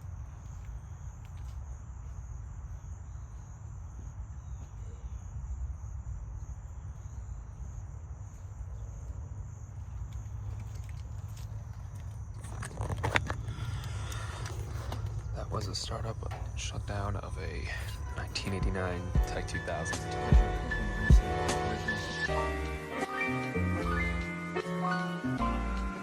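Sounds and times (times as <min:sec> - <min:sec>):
insects trilling: 0:00.0 - 0:23.0
air conditioner humming: 0:13.4 - 0:22.6.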